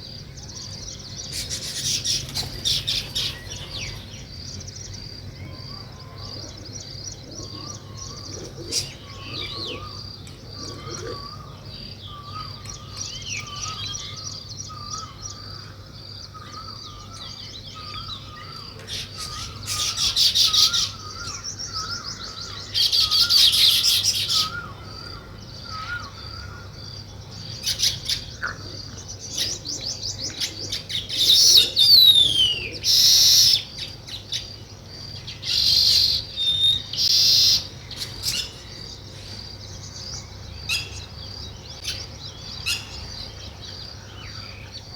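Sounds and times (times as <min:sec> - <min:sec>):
buzzy bird song bursts: 0:00.0 - 0:05.7, 0:16.3 - 0:28.5, 0:29.2 - 0:44.9
weaver birds chirping: 0:00.0 - 0:44.9.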